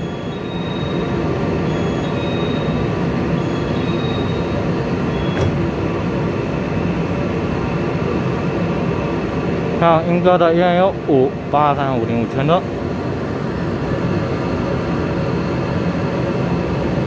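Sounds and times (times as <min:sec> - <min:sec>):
door warning beeping: 0:00.0 - 0:05.7
electric train humming: 0:00.0 - 0:17.0
train doors shutting knock: 0:05.1 - 0:06.0.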